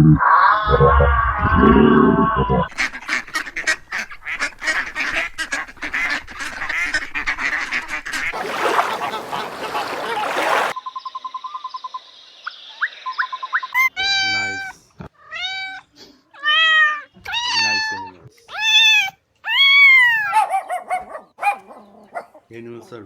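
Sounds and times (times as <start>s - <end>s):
waterfowl honking and quacking: 2.6s - 10.8s.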